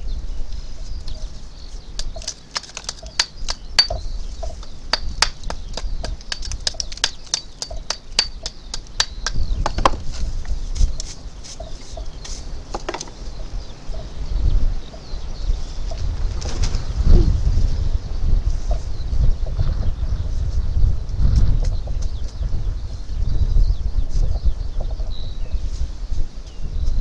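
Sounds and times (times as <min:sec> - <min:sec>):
faint bird chirping: 0:00.0 - 0:27.0
sharp clicks and taps: 0:02.0 - 0:04.0, 0:05.0 - 0:10.0.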